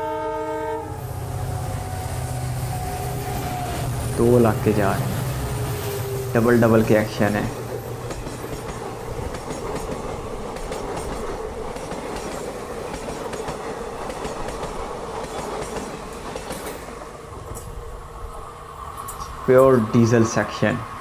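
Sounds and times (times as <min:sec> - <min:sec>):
train wheels rumbling on rail: 0:00.9 - 0:21.0
wheels clicking over rail joints: 0:05.5 - 0:17.8.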